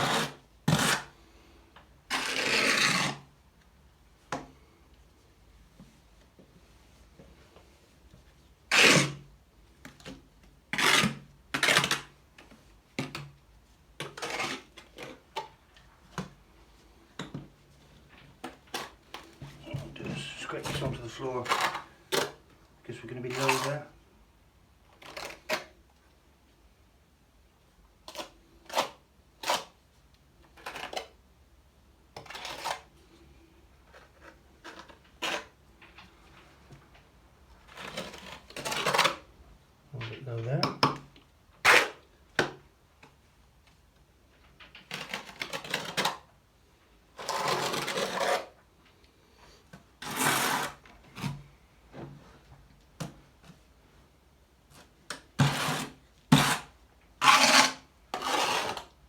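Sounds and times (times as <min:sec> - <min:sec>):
trowel scraping tile adhesive: 0:00.0 - 0:01.1, 0:02.1 - 0:03.2, 0:47.2 - 0:48.5, 0:50.0 - 0:50.8, 0:55.4 - 0:59.0
spreader scraping tile adhesive: 0:55.4 - 0:58.9.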